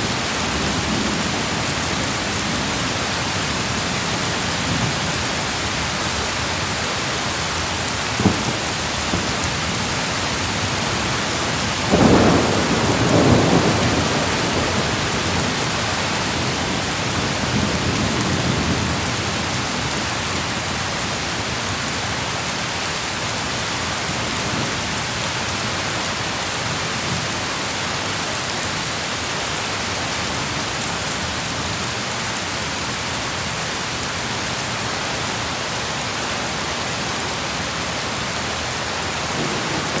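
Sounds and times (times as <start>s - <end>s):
steady rain: 0.0s - 40.0s
thunderclap rumbling: 8.0s - 19.1s, 39.4s - 40.0s
thunder crack: 8.2s - 10.8s, 11.5s - 15.8s.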